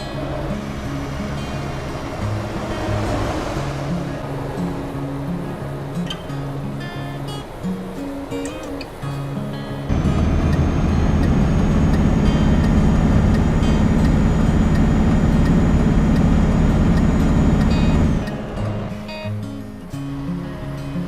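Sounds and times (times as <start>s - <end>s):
truck diesel engine running: 0.0s - 5.9s, 9.9s - 19.8s
high engine whine: 0.0s - 20.8s.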